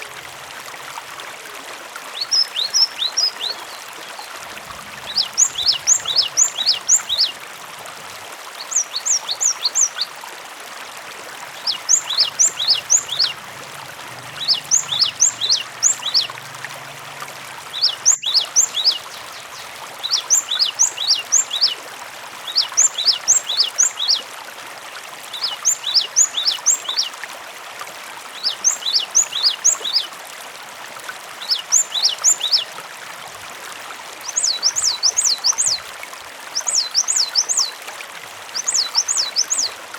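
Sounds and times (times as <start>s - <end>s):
running water trickling: 0.0s - 39.9s
bird singing high notes: 14.4s - 16.4s.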